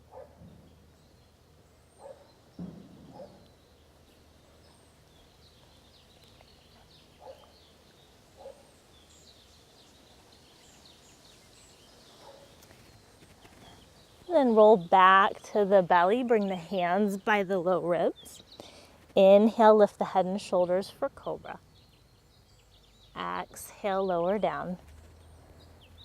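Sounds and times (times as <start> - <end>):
soft thump: 2.6 - 3.4.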